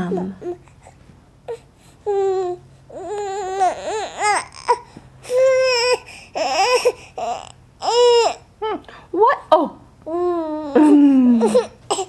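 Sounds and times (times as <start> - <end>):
baby babbling: 1.5 - 8.5, 10.1 - 12.0
baby squealing: 3.0 - 8.4.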